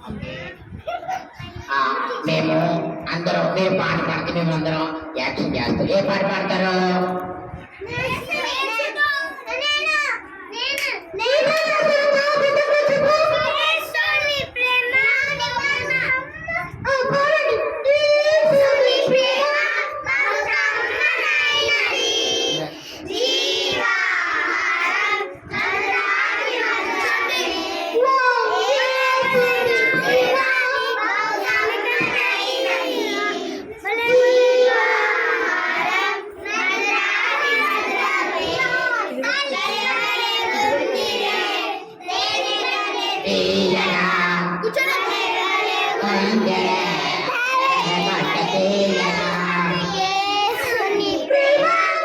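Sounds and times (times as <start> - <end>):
children singing: 18.4 - 52.0.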